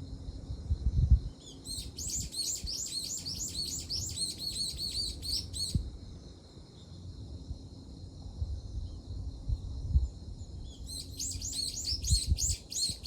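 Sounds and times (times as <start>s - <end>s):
small bird chirping: 1.4s - 5.8s, 10.4s - 13.0s.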